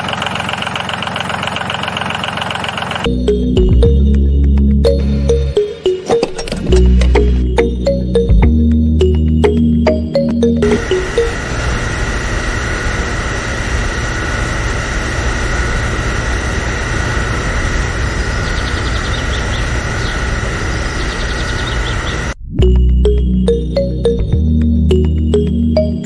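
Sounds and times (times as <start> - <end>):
machine whine and hum: 0.0 - 26.0
music: 3.1 - 11.4, 22.4 - 26.0.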